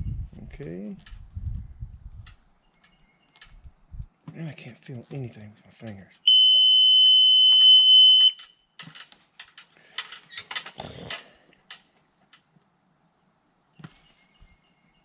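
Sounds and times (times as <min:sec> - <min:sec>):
high warning buzzer beep: 0:06.3 - 0:08.4
clicks and rattles: 0:08.4 - 0:12.5.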